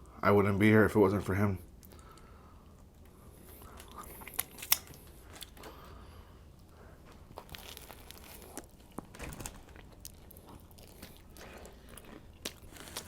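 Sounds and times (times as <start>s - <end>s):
paper wrapper crinkling and tearing: 7.4s - 10.4s.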